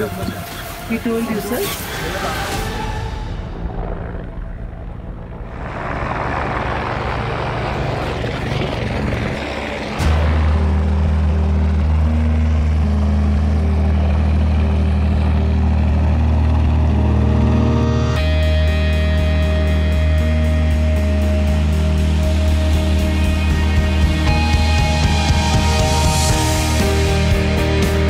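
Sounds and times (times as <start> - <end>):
helicopter rushing whoosh: 0.0 - 19.4
low droning background music: 0.0 - 28.0.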